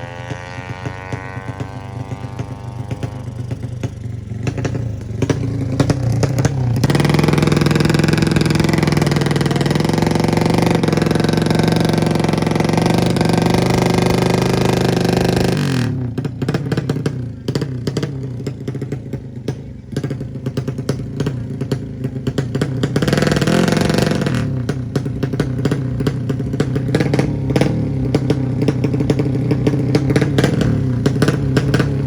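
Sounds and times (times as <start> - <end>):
two-stroke motorcycle revving: 0.0 - 32.0.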